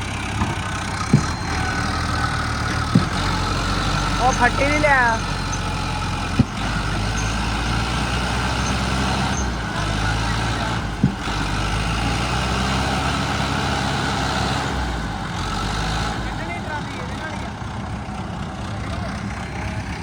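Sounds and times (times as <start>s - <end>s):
tractor diesel engine running: 0.0s - 20.0s
sharp knocks: 0.4s - 12.8s.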